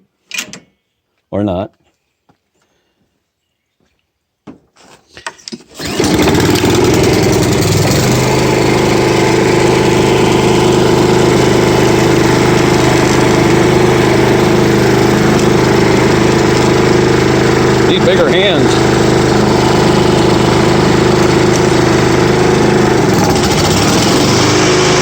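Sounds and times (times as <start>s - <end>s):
lawn mower engine starting and running: 5.4s - 25.0s.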